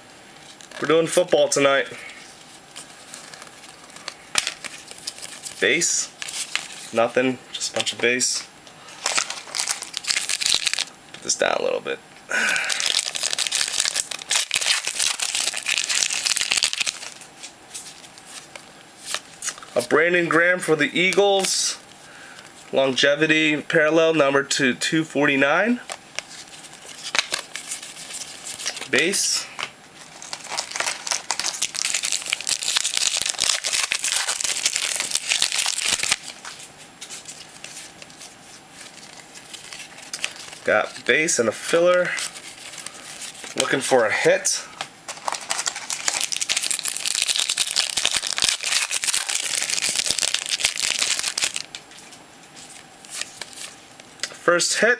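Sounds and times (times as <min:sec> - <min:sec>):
cards being handled: 0:02.0 - 0:07.0, 0:12.7 - 0:19.8, 0:25.8 - 0:43.9, 0:44.8 - 0:54.3
plastic wrapper crinkling: 0:02.2 - 0:07.0, 0:09.0 - 0:10.9, 0:12.4 - 0:19.9, 0:25.8 - 0:29.1, 0:30.0 - 0:43.9, 0:45.1 - 0:53.8.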